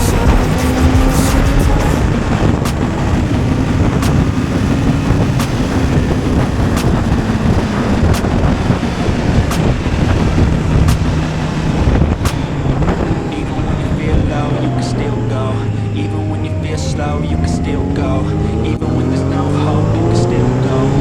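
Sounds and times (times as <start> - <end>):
motorcycle engine running: 0.0 - 14.1
wind rush on microphone: 0.0 - 21.0
sharp tick: 6.8 - 7.1, 8.1 - 8.4.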